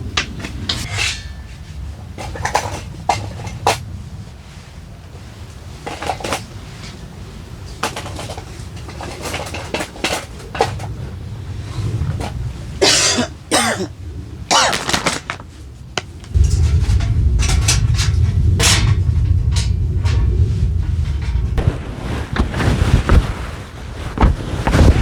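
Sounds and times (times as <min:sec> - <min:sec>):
steady low rumble: 0:00.0 - 0:08.4, 0:15.2 - 0:25.0
dishes clinking: 0:00.8 - 0:03.8
person coughing: 0:12.8 - 0:13.9.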